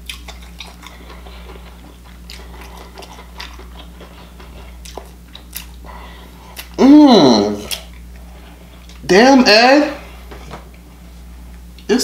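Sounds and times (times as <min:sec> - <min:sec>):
person chewing: 0:00.0 - 0:09.0
low steady hum: 0:00.0 - 0:12.0.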